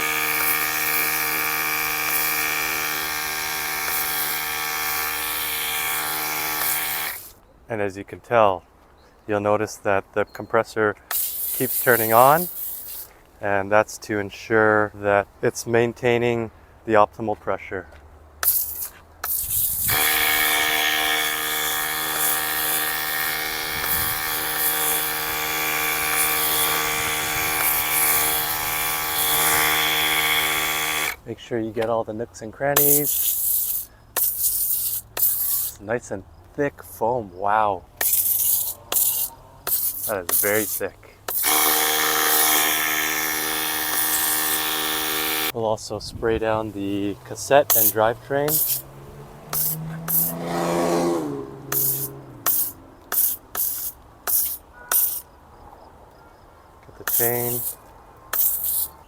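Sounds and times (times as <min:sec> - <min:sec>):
electric compressor whining: 0:00.0 - 0:07.4, 0:19.4 - 0:31.2, 0:38.0 - 0:45.6, 0:46.5 - 0:55.3
foam spraying with a hiss: 0:11.1 - 0:13.1, 0:18.4 - 0:20.2, 0:32.8 - 0:35.8, 0:38.0 - 0:41.6, 0:47.7 - 0:48.8, 0:51.7 - 0:55.3, 0:57.0 - 0:59.0
electric compressor motor whine: 0:19.7 - 0:31.2, 0:41.3 - 0:45.5.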